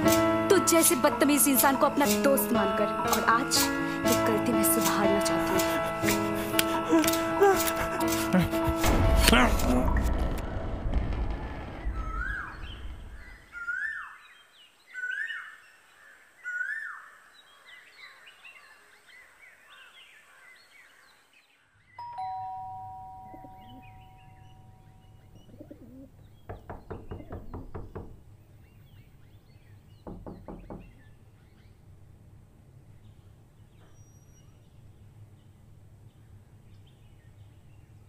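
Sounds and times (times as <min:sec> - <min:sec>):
bird chirping: 0:11.9 - 0:22.0, 0:22.9 - 0:32.0, 0:32.9 - 0:38.0
two-tone chime: 0:22.0 - 0:25.0
rapid knocking: 0:26.4 - 0:28.3, 0:30.0 - 0:31.0.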